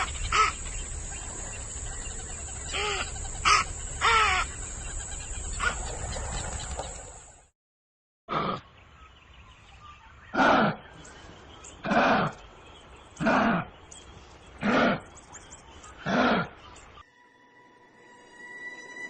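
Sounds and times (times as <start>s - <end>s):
animal calling: 0.0s - 7.1s, 10.3s - 11.0s, 11.8s - 12.4s, 13.2s - 13.7s, 14.6s - 15.1s, 15.9s - 17.0s.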